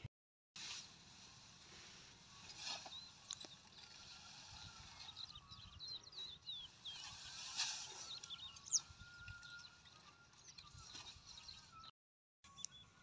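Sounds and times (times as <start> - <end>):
small birds chirping: 2.4 - 11.9, 12.5 - 13.0
brief rustle: 6.9 - 8.4.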